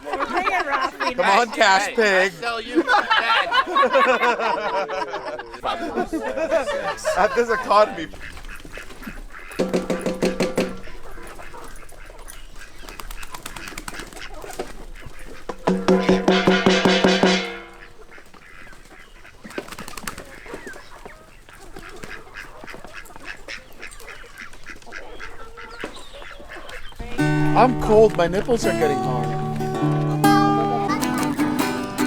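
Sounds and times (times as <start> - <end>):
animal rasping call: 8.1 - 13.0, 13.9 - 19.4, 20.4 - 32.0.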